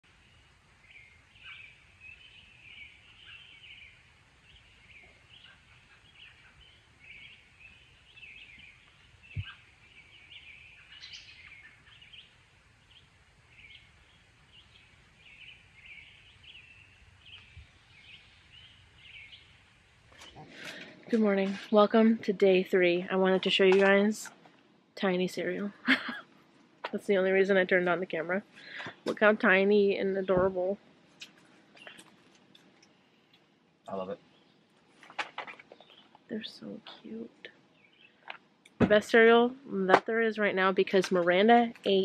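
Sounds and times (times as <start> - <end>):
faint bird chirps: 0.1 - 20.9, 31.8 - 32.2.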